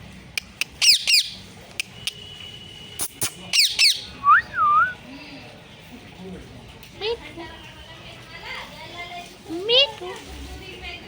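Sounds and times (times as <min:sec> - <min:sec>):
parrot screeching: 0:00.8 - 0:01.4, 0:03.5 - 0:04.1.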